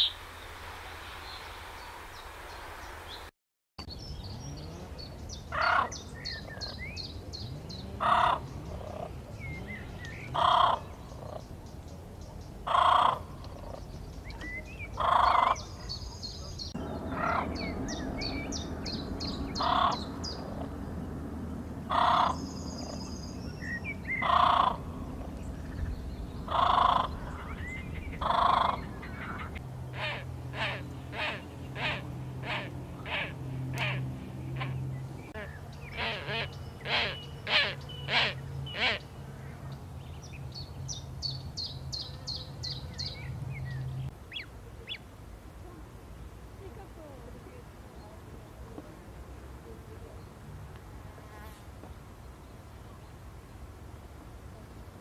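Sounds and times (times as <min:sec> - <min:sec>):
songbirds high chirping: 0:00.0 - 0:00.6, 0:01.2 - 0:50.8
bird cawing harshly: 0:21.9 - 0:22.4.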